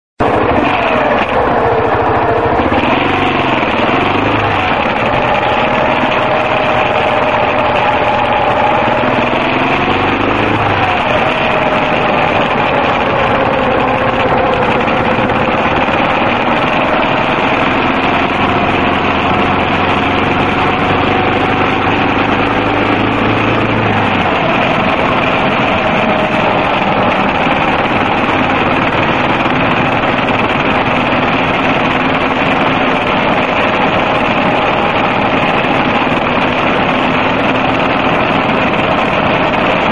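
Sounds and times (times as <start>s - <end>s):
motorcycle engine revving: 0.2s - 39.9s
wind and road noise: 0.2s - 39.9s.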